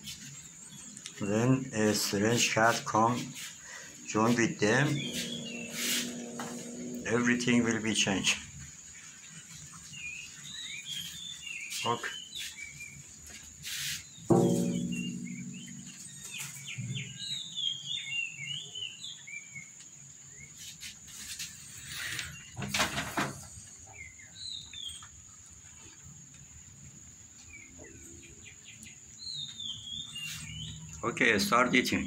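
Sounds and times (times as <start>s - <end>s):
small birds chirping: 0.0s - 32.0s
brief loud noise: 4.7s - 7.6s.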